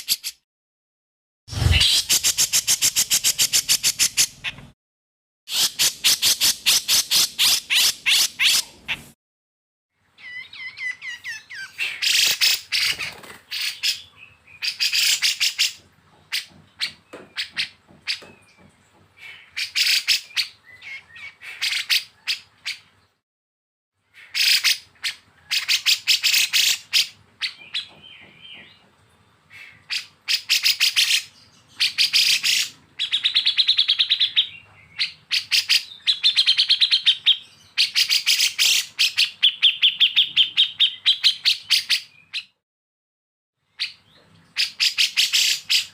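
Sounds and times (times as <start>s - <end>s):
songbird singing: 10.0s - 12.1s.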